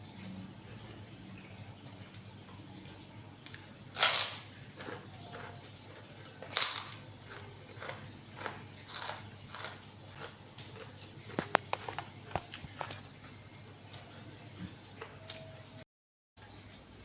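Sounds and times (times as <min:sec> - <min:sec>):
wet chewing clicks: 0:04.8 - 0:13.0.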